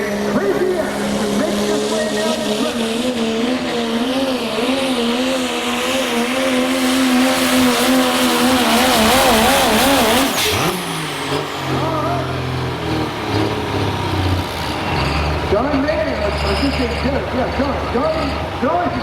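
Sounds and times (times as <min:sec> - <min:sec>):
diesel pickup engine under load: 0:00.0 - 0:19.0.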